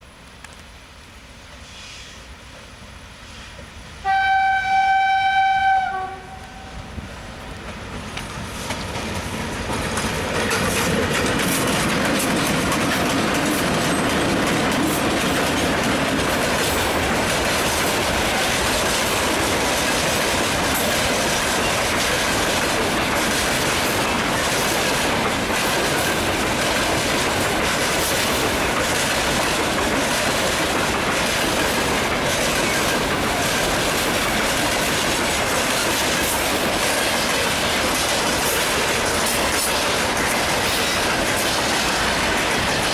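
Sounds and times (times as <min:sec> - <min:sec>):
locomotive horn blast: 0:04.0 - 0:06.9
freight wagons clickety-clack: 0:07.6 - 0:42.9.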